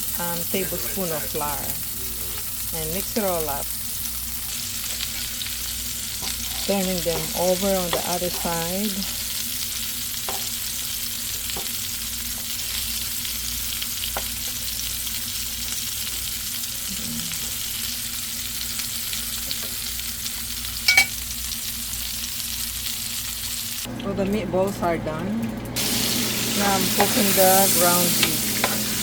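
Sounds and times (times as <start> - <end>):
meatballs sizzling in a pan: 0.0 - 23.9, 25.8 - 29.0.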